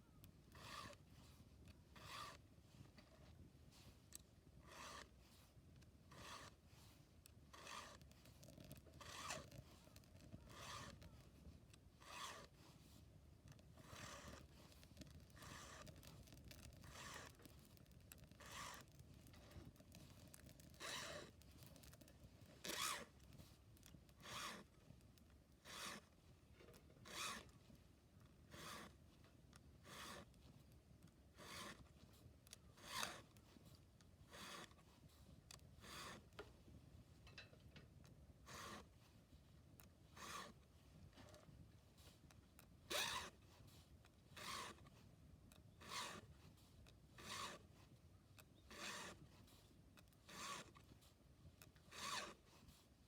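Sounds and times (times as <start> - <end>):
file rasping on chainsaw chain: 0.5 - 1.1, 2.0 - 2.4, 4.6 - 5.2, 6.0 - 6.6, 7.4 - 11.1, 12.0 - 12.6, 13.8 - 22.0, 22.6 - 23.3, 24.2 - 24.8, 25.6 - 26.2, 27.0 - 27.6, 28.4 - 29.0, 29.8 - 30.4, 31.3 - 31.9, 32.7 - 33.4, 34.2 - 34.8, 35.8 - 36.4, 38.4 - 39.0, 40.1 - 41.4, 42.9 - 43.5, 44.3 - 44.9, 45.6 - 46.4, 47.1 - 47.8, 48.6 - 49.5, 50.2 - 50.9, 51.8 - 52.7.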